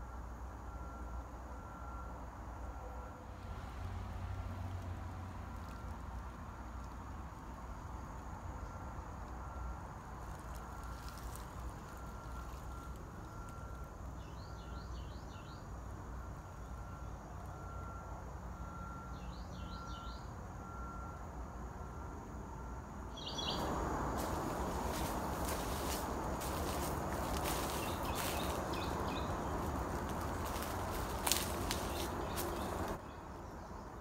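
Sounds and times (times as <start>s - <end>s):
steady background hiss: 21.8s - 33.2s
bird chirping rapidly: 23.1s - 23.8s, 24.7s - 33.0s.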